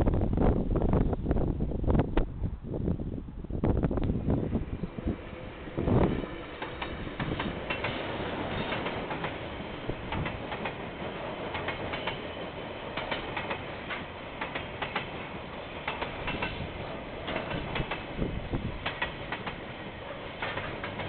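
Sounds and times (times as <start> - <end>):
freight train rumble: 0.0 - 21.0
wheels clicking over rail joints: 6.4 - 21.0.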